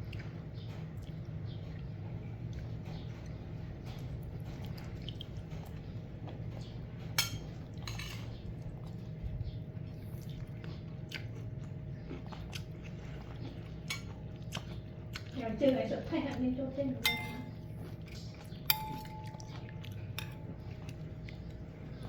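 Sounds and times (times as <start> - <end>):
cat chewing food: 8.4 - 16.6.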